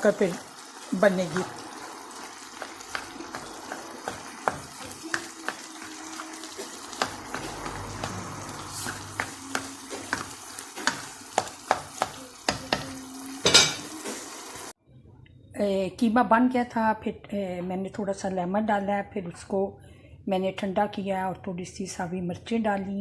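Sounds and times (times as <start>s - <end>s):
meat sizzling in a pan: 0.0s - 14.8s
spoon knocking against pan: 2.6s - 6.0s, 6.9s - 13.9s.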